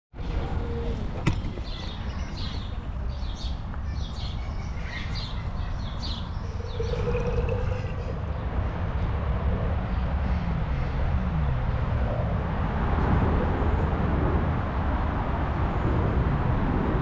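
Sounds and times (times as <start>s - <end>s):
low outdoor rumble: 0.2s - 17.0s
small bird chirping: 1.6s - 8.4s.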